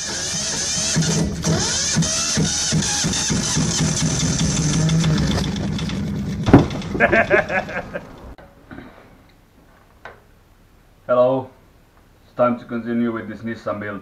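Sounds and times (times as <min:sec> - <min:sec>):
car engine running: 0:00.7 - 0:08.4
sharp bang: 0:06.4 - 0:07.3.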